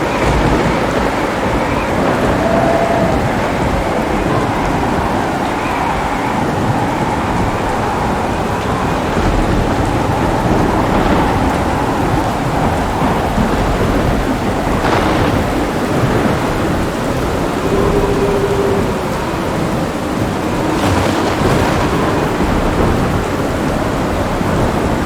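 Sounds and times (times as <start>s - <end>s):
heavy rain falling: 0.0s - 25.0s
rolling thunder: 0.0s - 25.0s
sharp thunder crack: 8.9s - 25.0s.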